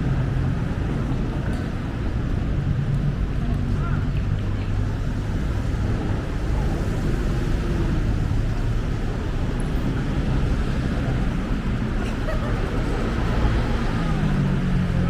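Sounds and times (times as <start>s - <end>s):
city road traffic rumble: 0.0s - 15.0s.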